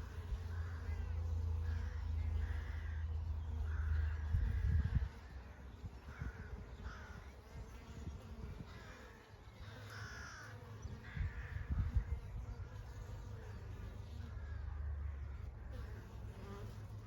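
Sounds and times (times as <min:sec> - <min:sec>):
bird harsh calls: 0:00.0 - 0:08.0, 0:08.7 - 0:12.1
bees buzzing: 0:00.0 - 0:17.0.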